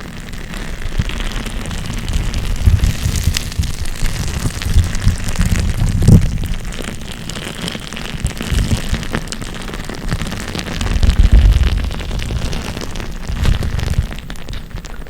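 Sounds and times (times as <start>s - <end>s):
crackling clicks and scratches: 0.0s - 15.0s
low thumps on microphone: 1.8s - 6.7s.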